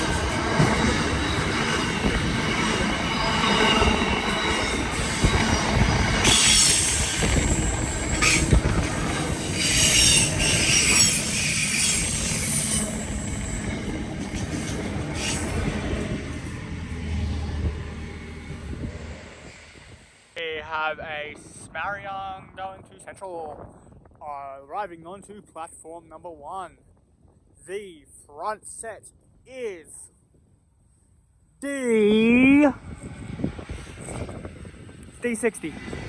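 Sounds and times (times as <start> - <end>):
train wheels squealing: 0.0 - 16.6
train rumble on track: 0.0 - 20.7, 32.7 - 36.0.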